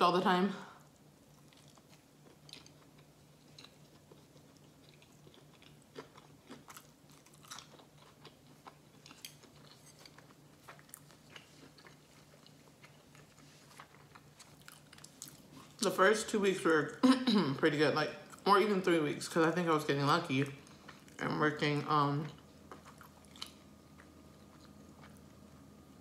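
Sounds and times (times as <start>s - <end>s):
person chewing with wet clicks: 0.9s - 15.8s, 20.4s - 21.4s, 22.1s - 25.8s.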